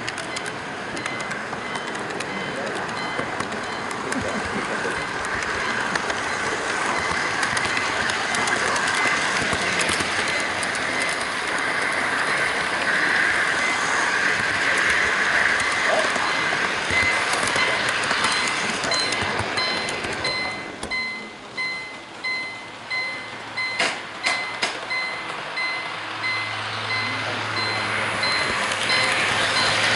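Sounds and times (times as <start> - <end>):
wheel clicks over track joints: 0.0 - 21.0
model train wheels rumbling on rails: 0.0 - 29.9.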